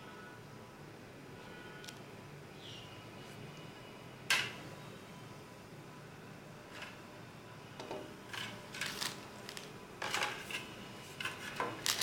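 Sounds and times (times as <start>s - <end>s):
packaging rustling and clicking: 8.7s - 10.3s, 11.5s - 12.0s.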